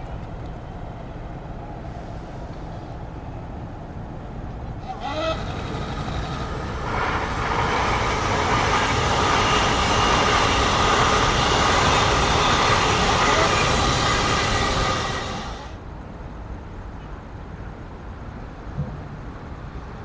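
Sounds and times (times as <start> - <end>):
train rumbling on rails: 4.1 - 15.8
train horn toot: 4.8 - 15.8.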